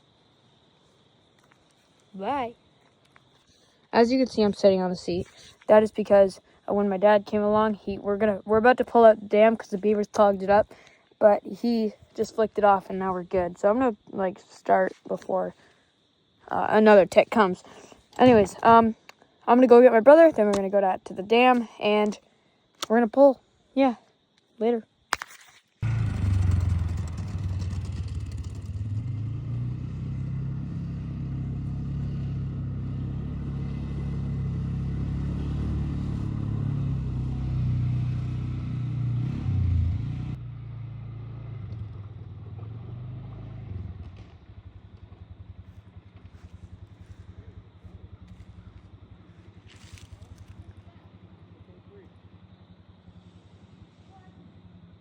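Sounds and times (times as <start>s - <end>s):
atv engine running: 25.8s - 55.0s.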